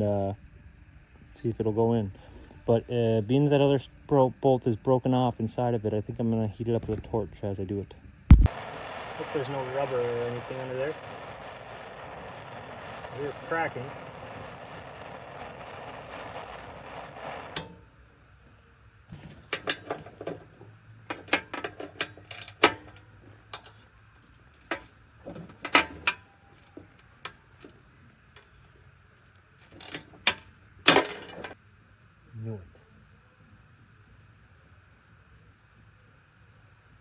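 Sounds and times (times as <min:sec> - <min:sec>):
torch hissing: 0:08.3 - 0:18.0.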